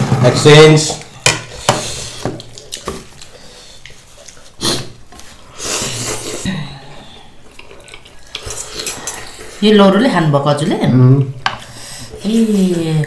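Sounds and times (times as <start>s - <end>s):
loud slurps or sniffs: 4.5s - 6.5s
person slurping noodles: 4.5s - 7.2s.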